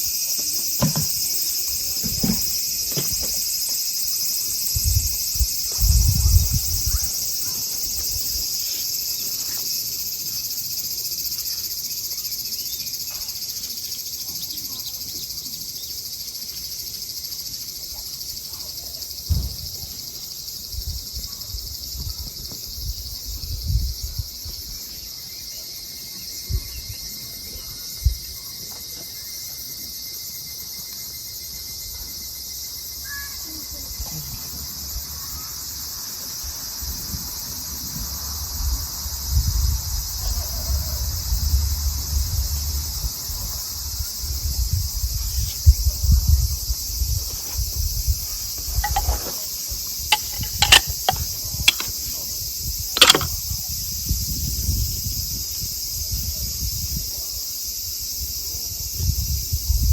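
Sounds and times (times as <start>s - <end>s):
crickets and night insects: 0.0s - 59.9s
soft thumps: 0.8s - 1.2s.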